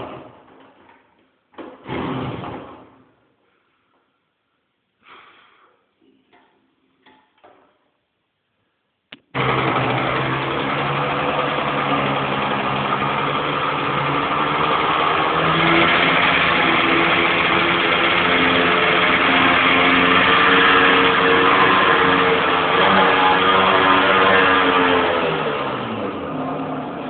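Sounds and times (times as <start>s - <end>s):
motorcycle engine starting and running: 9.2s - 27.0s.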